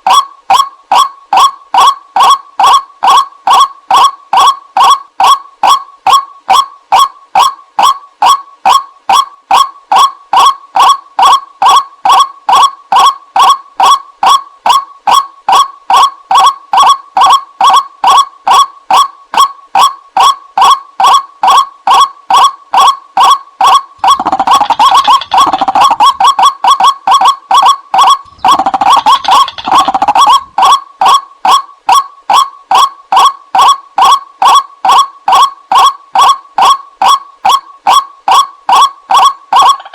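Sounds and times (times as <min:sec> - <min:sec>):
waterhen calling: 0:24.0 - 0:26.8, 0:28.0 - 0:31.2.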